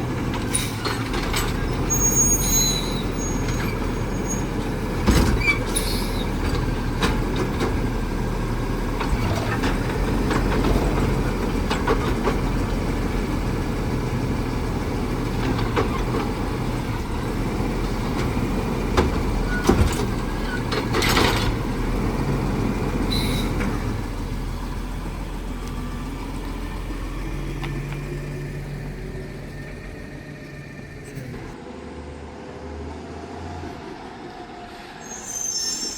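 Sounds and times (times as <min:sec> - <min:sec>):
garbage truck diesel engine: 0:00.0 - 0:35.9
knocks and clanks: 0:18.0 - 0:22.0.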